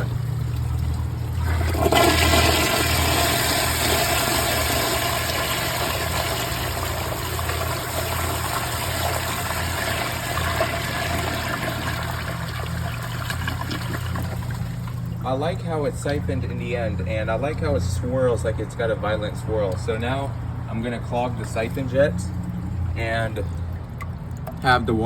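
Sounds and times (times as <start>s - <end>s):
toilet flushing: 0.0s - 15.2s.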